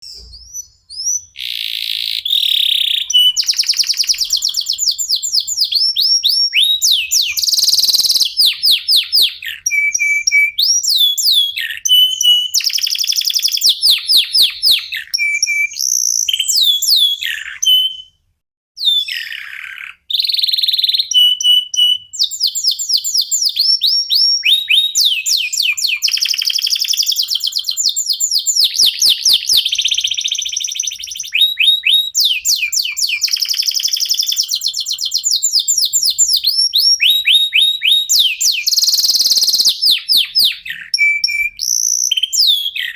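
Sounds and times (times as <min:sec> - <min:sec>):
canaries singing trills: 0:00.0 - 0:18.2, 0:18.8 - 0:42.9.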